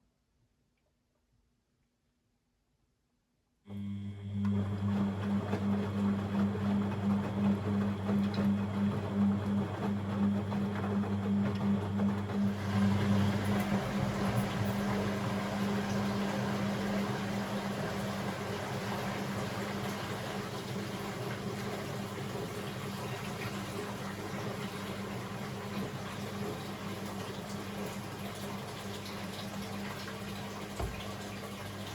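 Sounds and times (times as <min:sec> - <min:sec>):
deeper hum: 0:03.7 - 0:17.6
steady machine hum: 0:03.7 - 0:20.8
water rushing in washing machine: 0:03.8 - 0:31.9.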